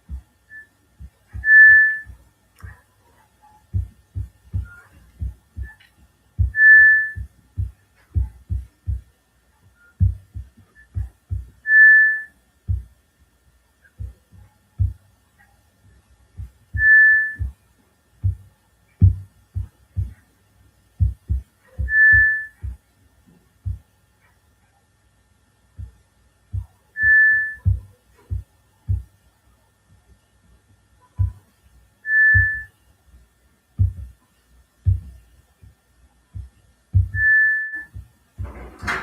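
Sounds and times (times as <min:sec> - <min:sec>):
high whistle-like tone: 0:01.4 - 0:02.1, 0:06.5 - 0:07.3, 0:11.7 - 0:12.4, 0:16.8 - 0:17.5, 0:21.8 - 0:22.6, 0:27.0 - 0:27.8, 0:32.1 - 0:32.7, 0:37.1 - 0:38.0
low thumps: 0:06.4 - 0:09.1, 0:10.0 - 0:11.6, 0:18.2 - 0:20.2, 0:33.8 - 0:34.2, 0:34.8 - 0:39.0.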